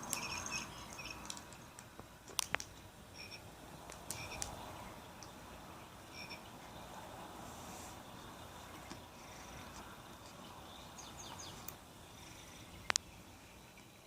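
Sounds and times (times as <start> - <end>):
sharp clicks: 0.9 - 4.6, 12.9 - 13.1.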